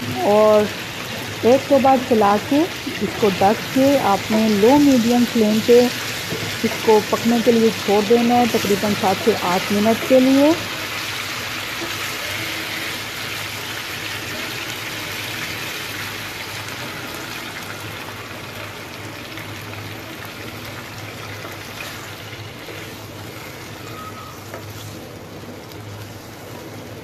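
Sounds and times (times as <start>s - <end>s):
chicken sizzling in a pan: 0.0s - 27.0s
wooden spatula stirring: 2.9s - 10.8s, 21.2s - 27.0s.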